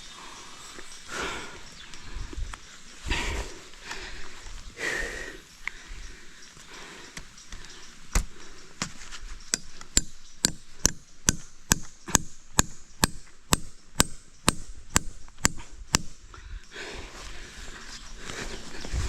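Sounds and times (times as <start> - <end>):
chopping strikes: 9.5 - 16.2.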